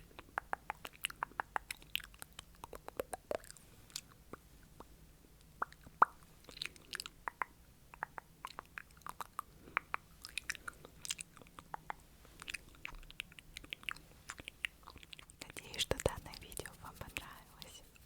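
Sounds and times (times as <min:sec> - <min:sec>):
wet lip and tongue clicks: 0:00.0 - 0:17.6.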